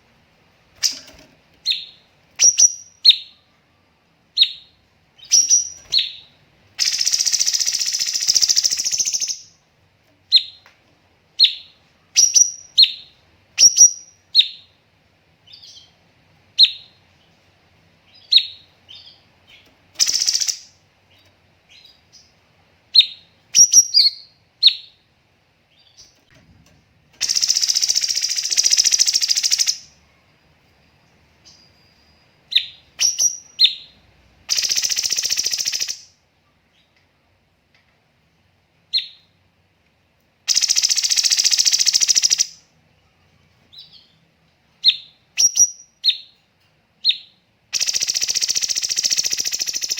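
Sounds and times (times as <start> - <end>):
bird chirps and trills: 4.4 - 9.5, 18.1 - 20.7, 27.2 - 30.0, 31.5 - 36.0, 47.1 - 49.9.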